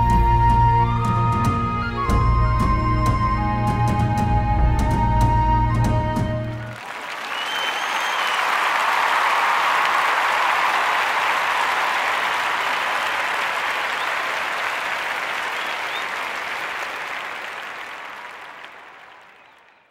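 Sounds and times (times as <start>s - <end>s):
audience applauding: 5.3s - 19.9s.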